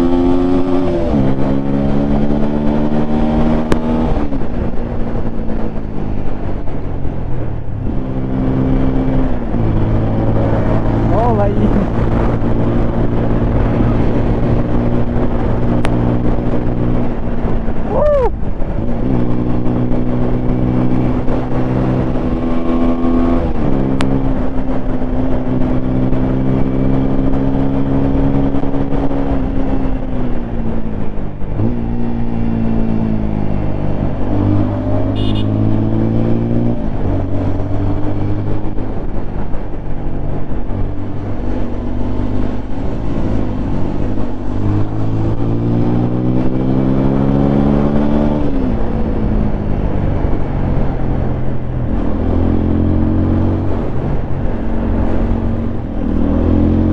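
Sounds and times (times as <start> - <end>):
motorcycle engine revving: 0.0 - 5.4, 19.0 - 56.9.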